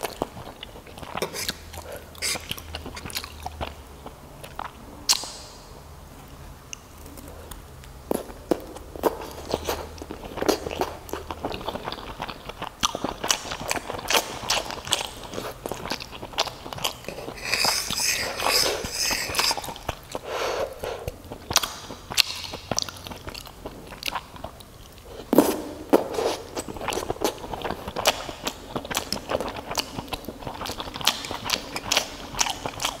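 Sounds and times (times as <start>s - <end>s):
wet chewing clicks and smacks: 7.5s - 20.2s, 21.2s - 25.0s, 26.6s - 33.0s.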